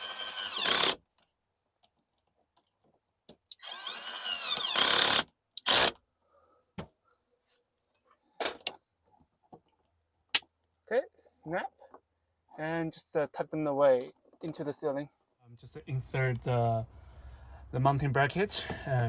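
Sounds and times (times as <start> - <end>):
power drill whirring: 0.0 - 1.0, 3.5 - 6.0.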